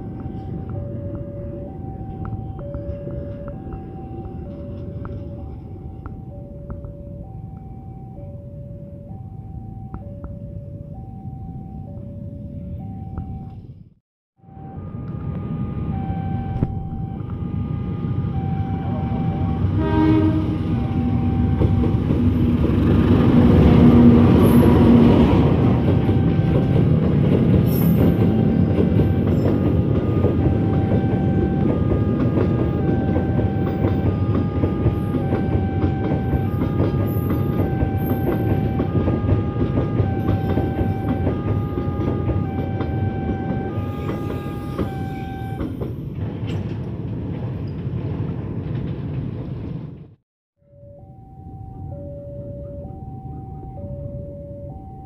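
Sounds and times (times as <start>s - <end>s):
freight train rolling past: 0.0s - 9.8s, 14.5s - 50.2s
crossing warning alarm: 0.0s - 46.6s, 50.6s - 55.0s
locomotive horn: 14.4s - 22.0s, 23.1s - 45.8s
train wheel clatter: 21.4s - 50.1s.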